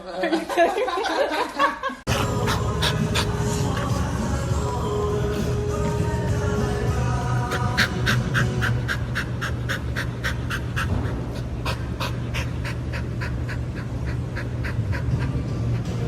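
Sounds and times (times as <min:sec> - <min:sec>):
dog panting: 0:02.1 - 0:04.2, 0:07.4 - 0:16.0
low hum: 0:02.1 - 0:16.0.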